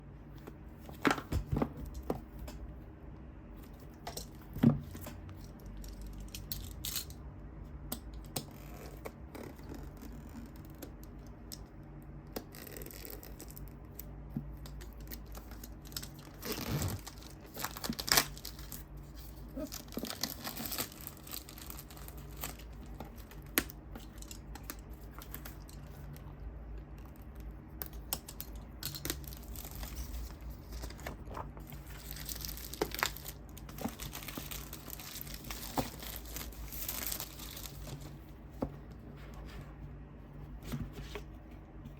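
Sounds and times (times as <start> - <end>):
faint low hum: 0.0 - 41.9
packaging tearing and crinkling: 15.1 - 23.5, 28.2 - 38.0.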